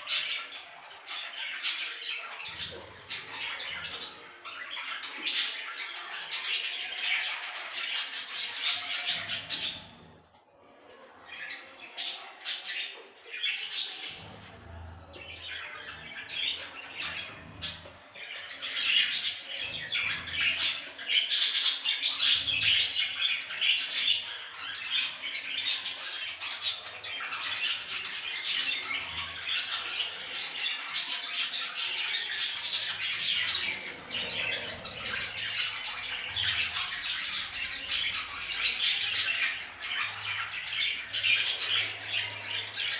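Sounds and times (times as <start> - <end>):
budgerigars chattering: 0.0 - 10.2, 11.3 - 42.9.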